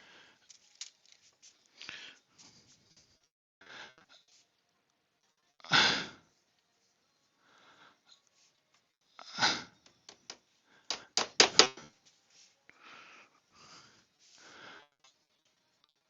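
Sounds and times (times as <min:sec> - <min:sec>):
plastic connectors clicking: 0:00.5 - 0:01.2, 0:10.1 - 0:11.8
soft breathy rustling: 0:12.0 - 0:14.9.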